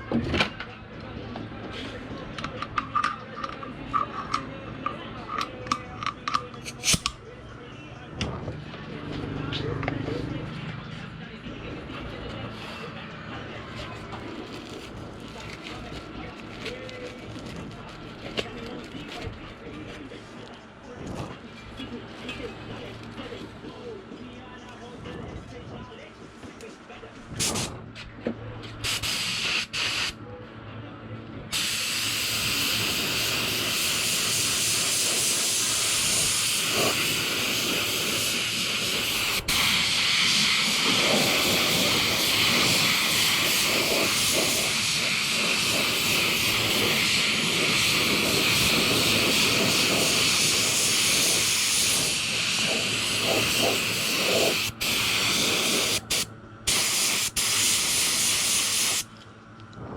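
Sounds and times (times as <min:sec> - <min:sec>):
spray paint hissing: 0:28.8 - 0:30.2, 0:31.6 - 0:59.1.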